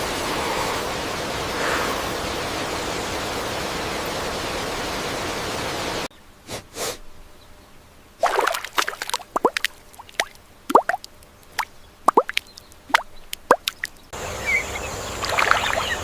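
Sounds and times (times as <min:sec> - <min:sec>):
falling water hissing: 0:00.0 - 0:07.1, 0:08.2 - 0:13.9
water drops dripping: 0:08.2 - 0:14.1.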